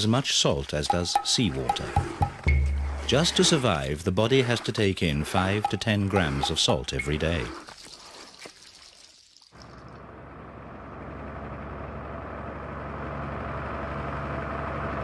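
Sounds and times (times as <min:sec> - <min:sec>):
truck engine running: 0:10.0 - 0:15.0.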